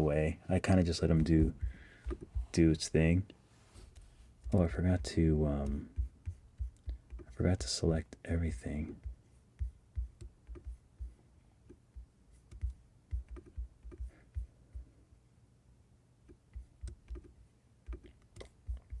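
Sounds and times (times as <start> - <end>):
keyboard and mouse clicks: 5.6 - 7.3, 9.0 - 10.8, 11.7 - 14.5, 16.3 - 19.0.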